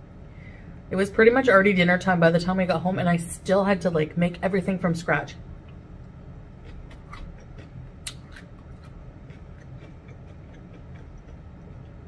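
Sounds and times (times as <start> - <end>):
low steady hum: 0.0 - 12.0
faint chewing and mouth smacking: 6.6 - 12.0.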